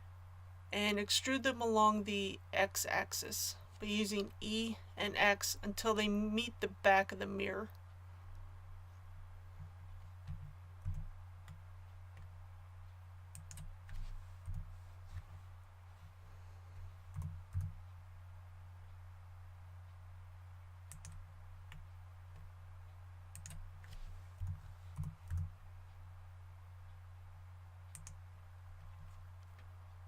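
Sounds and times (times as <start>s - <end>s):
low electrical hum: 0.0s - 30.0s
computer mouse clicks: 13.3s - 14.7s, 17.1s - 17.8s, 20.9s - 22.5s, 23.3s - 25.5s, 27.9s - 28.2s.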